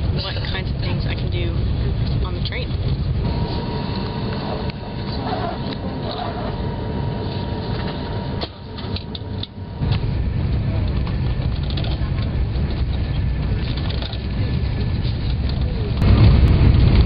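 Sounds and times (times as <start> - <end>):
train rumbling inside carriage: 0.0 - 17.0
voices: 0.2 - 12.9.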